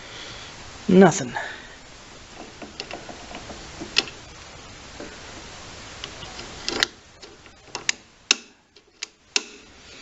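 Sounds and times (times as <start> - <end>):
steady hiss: 0.0 - 10.0
sharp clicks and knocks: 2.3 - 4.4, 5.0 - 9.7.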